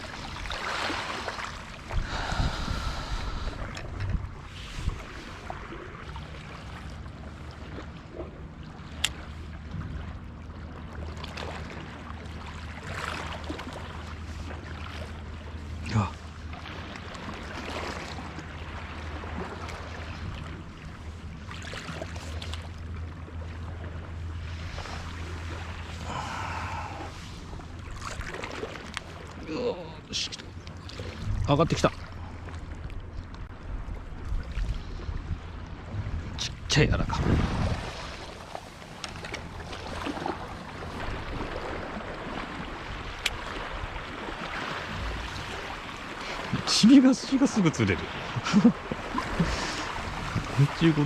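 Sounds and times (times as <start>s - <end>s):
wind rumble on microphone: 0.0s - 6.2s, 31.0s - 46.6s, 48.3s - 50.8s
sea water lapping: 0.0s - 51.0s
wind: 0.0s - 51.0s.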